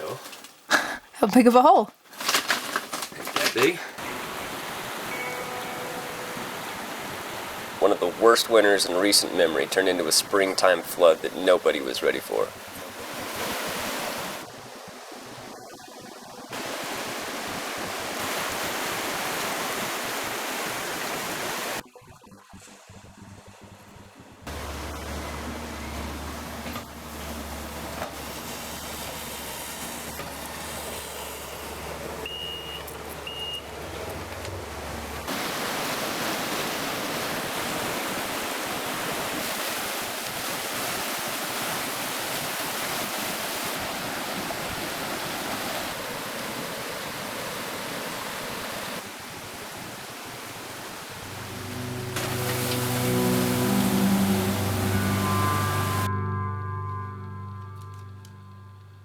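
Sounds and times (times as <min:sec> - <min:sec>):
floodwater rushing: 0:02.6 - 0:21.8, 0:24.5 - 0:56.1
short high tones: 0:05.1 - 0:07.1, 0:51.1 - 0:59.0
low hum: 0:21.8 - 0:32.3, 0:51.1 - 0:59.0.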